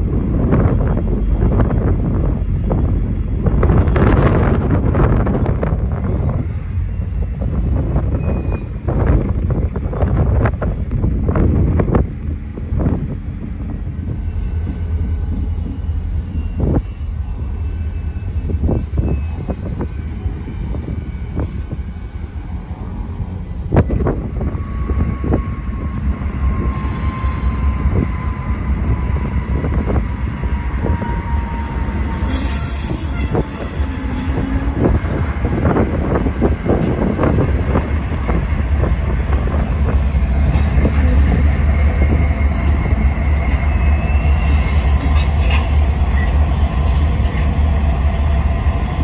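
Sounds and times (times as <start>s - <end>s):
diesel locomotives rumbling: 0.0s - 49.0s
thin squeal dropping in pitch: 29.8s - 34.9s, 42.1s - 45.0s.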